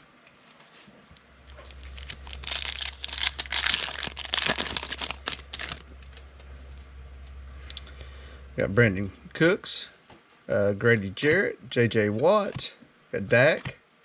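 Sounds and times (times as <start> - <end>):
foil wrapper crinkling and tearing: 1.6 - 5.9.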